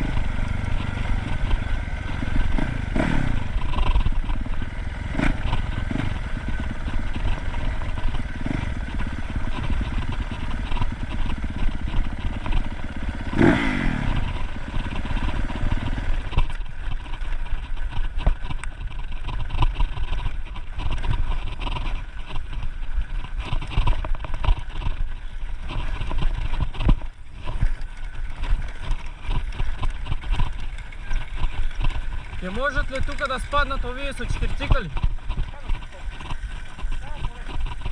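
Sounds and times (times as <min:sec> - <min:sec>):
dirt bike engine running: 0:00.0 - 0:37.9
scattered knocks: 0:28.8 - 0:37.9.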